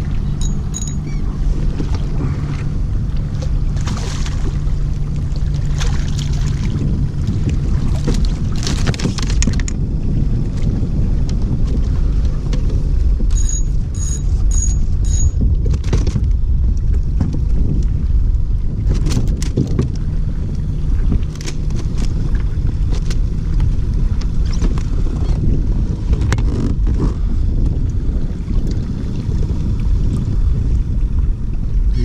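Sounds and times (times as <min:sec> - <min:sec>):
water sloshing against hull: 0:00.0 - 0:32.0
wind buffeting microphone: 0:00.0 - 0:32.0
short high beeps: 0:00.4 - 0:01.2, 0:13.3 - 0:15.4.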